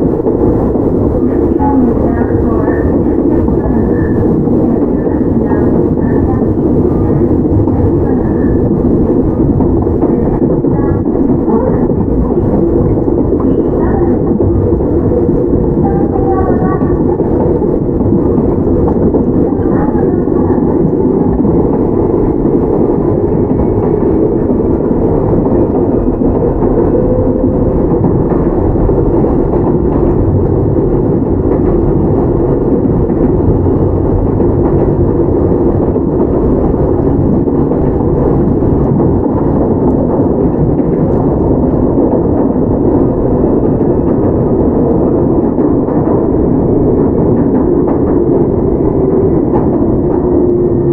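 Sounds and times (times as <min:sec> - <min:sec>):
train wheels on rail: 0:00.0 - 0:50.9.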